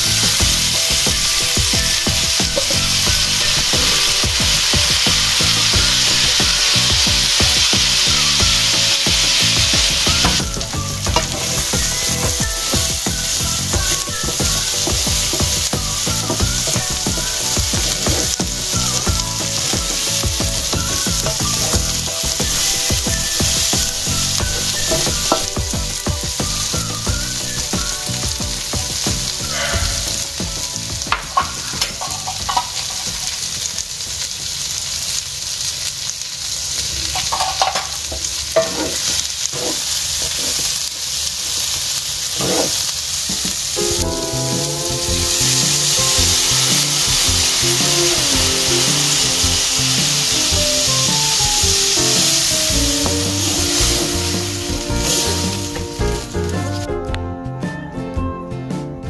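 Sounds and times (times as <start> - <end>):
food sizzling in oil: 0.0 - 56.9
water poured into hot pan: 0.0 - 56.9
wooden spatula scraping pan: 38.6 - 40.7, 42.4 - 43.6.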